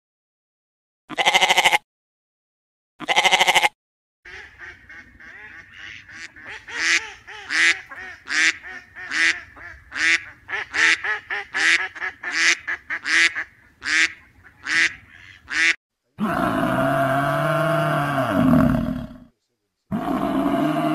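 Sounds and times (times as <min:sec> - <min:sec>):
waterfowl honking: 0:04.3 - 0:15.8.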